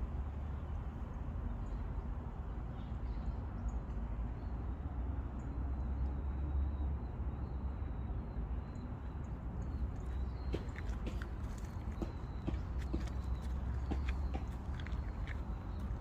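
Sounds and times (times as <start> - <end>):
birds chirping: 8.7 - 16.0.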